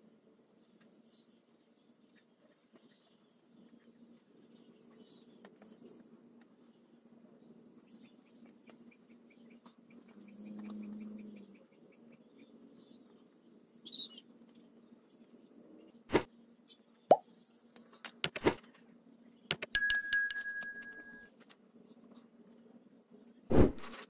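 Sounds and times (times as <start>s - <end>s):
ringing metallic clink: 19.7s - 21.3s.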